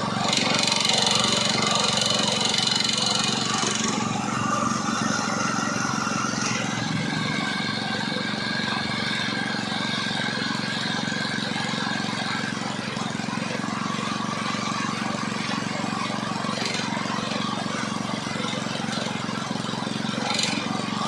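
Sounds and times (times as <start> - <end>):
petrol engine running: 0.0 - 21.0.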